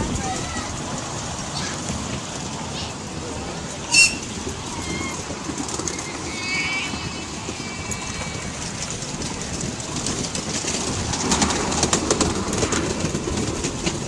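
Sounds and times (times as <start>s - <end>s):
train wheels rumbling on rail: 0.0s - 14.0s
wheels clicking over rail joints: 0.0s - 14.0s.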